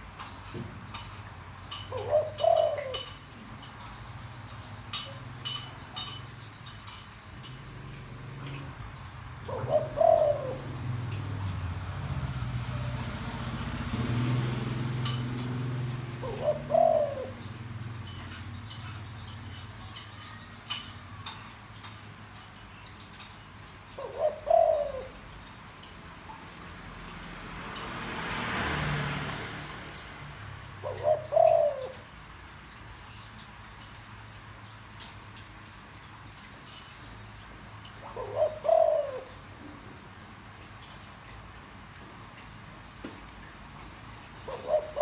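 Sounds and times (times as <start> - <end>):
dove cooing: 1.7 - 6.5, 8.0 - 21.8, 23.9 - 25.6, 29.8 - 32.3, 37.7 - 40.6, 44.0 - 45.0.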